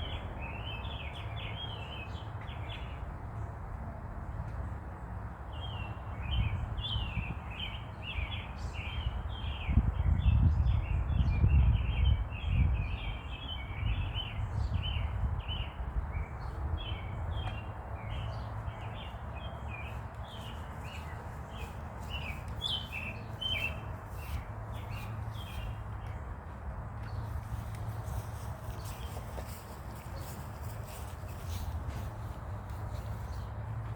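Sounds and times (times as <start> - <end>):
small birds chirping: 5.6 - 26.4.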